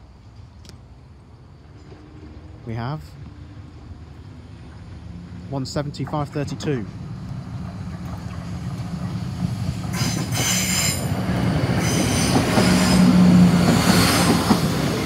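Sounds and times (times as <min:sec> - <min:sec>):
train approaching: 0:00.0 - 0:15.0
wheel squeal: 0:09.9 - 0:11.1, 0:11.8 - 0:13.2.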